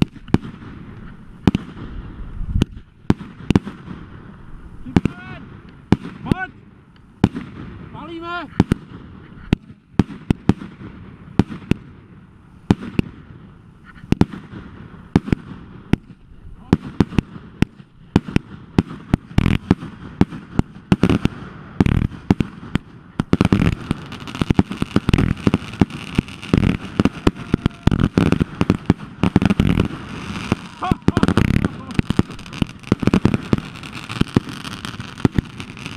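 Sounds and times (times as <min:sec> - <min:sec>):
fireworks banging and crackling: 0:00.0 - 0:35.9.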